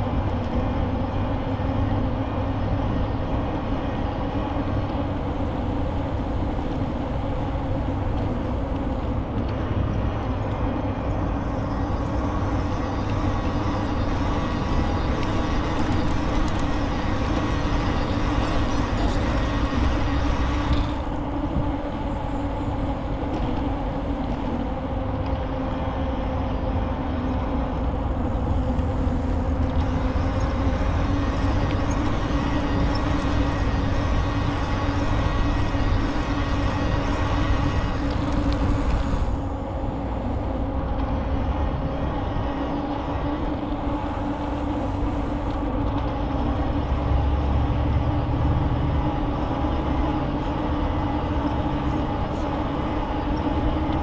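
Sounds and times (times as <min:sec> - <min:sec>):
bicycle tyres humming: 0:00.0 - 0:54.0
wind on microphone: 0:11.1 - 0:54.0.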